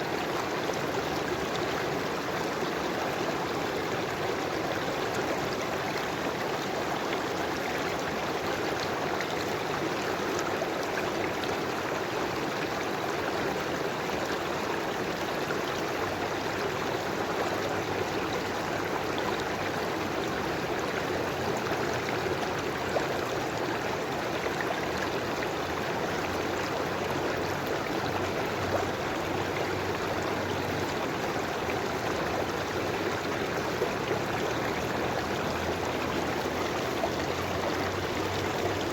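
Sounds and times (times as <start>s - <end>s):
river water flowing over stones: 0.0s - 38.9s.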